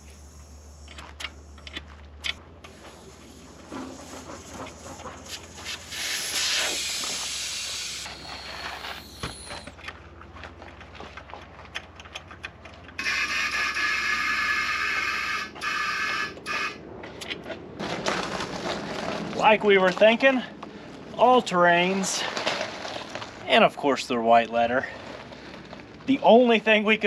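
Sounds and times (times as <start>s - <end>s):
compressed air hissing: 0.0s - 1.6s, 2.7s - 9.7s
loud mechanical whir: 0.0s - 9.8s, 13.0s - 16.8s.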